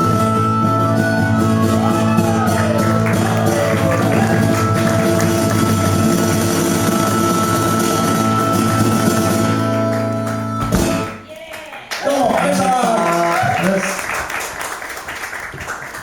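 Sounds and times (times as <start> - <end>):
guitar playing held chords: 0.0 - 11.2.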